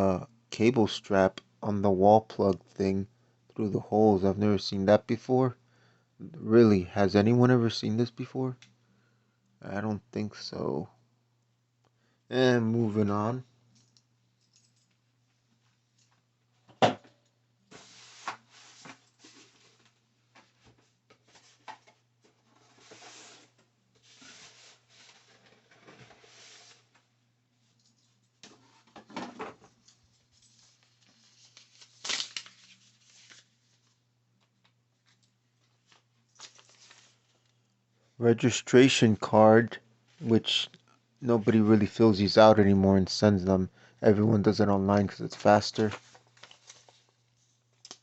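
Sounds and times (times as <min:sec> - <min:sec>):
faint steady hum: 0:00.0 - 0:48.0
packaging rustling: 0:30.2 - 0:33.8, 0:35.8 - 0:37.5, 0:45.3 - 0:48.0.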